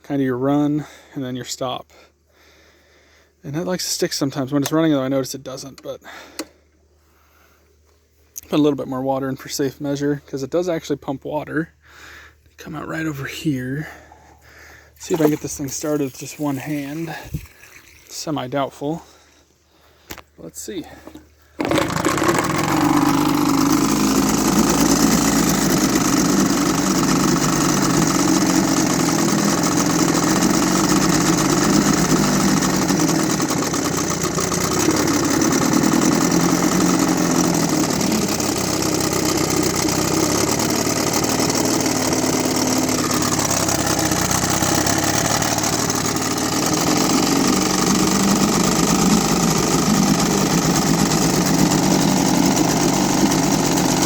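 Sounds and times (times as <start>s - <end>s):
outboard motor running: 13.3s - 18.3s, 20.8s - 54.0s.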